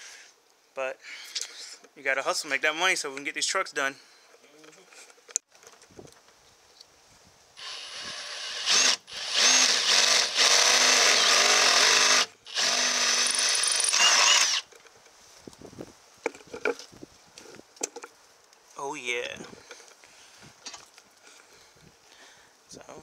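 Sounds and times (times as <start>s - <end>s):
drill boring through sheet metal: 7.6s - 14.7s.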